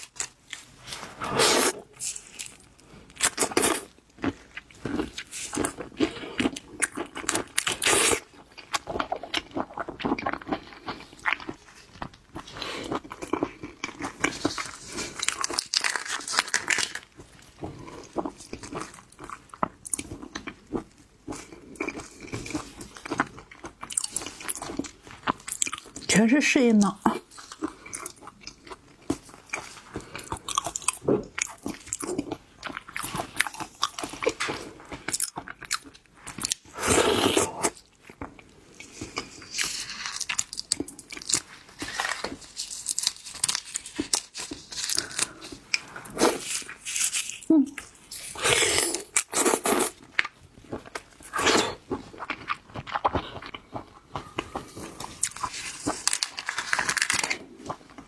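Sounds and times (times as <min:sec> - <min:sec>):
chewing and crunching shellfish: 0:00.0 - 0:58.0
wet mouth sounds: 0:44.7 - 0:50.0.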